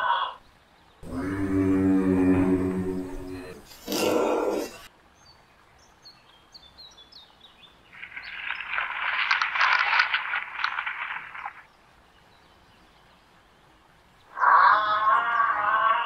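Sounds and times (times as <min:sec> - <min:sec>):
small birds chirping: 0:02.7 - 0:09.6.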